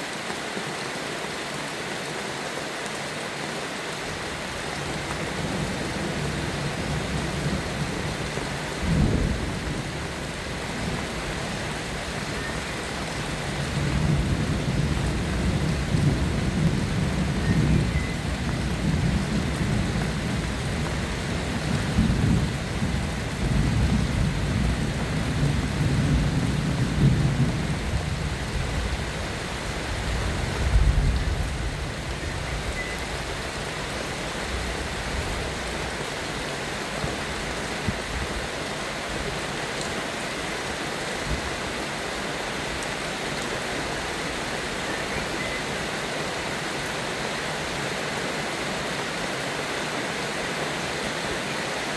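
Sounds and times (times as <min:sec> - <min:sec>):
steady rain: 0:00.0 - 0:51.9
thunder rumbling: 0:10.7 - 0:29.2.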